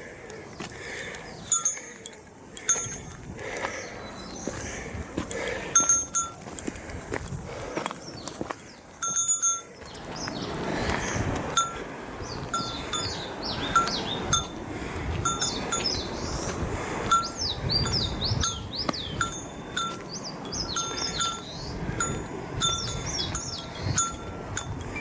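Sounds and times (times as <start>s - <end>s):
small metal bell jingling: 1.5s - 3.2s, 5.8s - 10.1s, 15.3s - 15.9s, 17.1s - 25.0s
birds singing warbling phrases: 2.6s - 6.2s, 9.6s - 14.6s, 15.3s - 25.0s.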